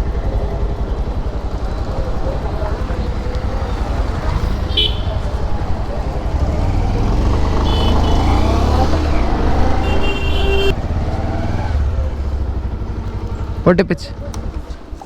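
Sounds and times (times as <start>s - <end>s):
wind rumble: 0.0s - 7.6s
motorcycle engine: 0.0s - 15.0s
vehicle horns: 2.7s - 10.8s.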